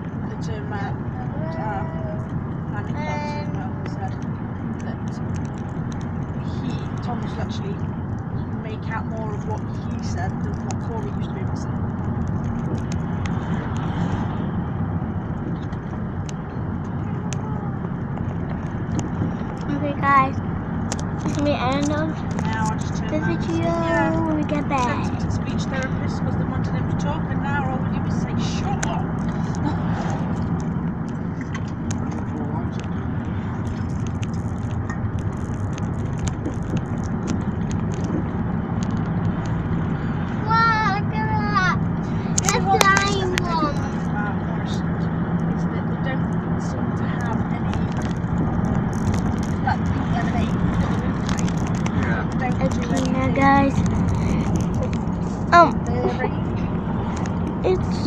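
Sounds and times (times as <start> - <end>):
road and engine rumble in car: 0.0 - 58.0
small clicks and rattles: 3.8 - 8.3, 30.2 - 39.7, 47.2 - 55.7.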